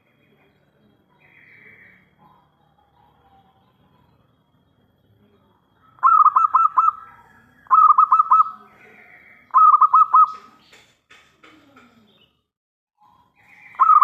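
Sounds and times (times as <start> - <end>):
dove singing rapid notes: 5.8 - 11.2, 13.0 - 14.0.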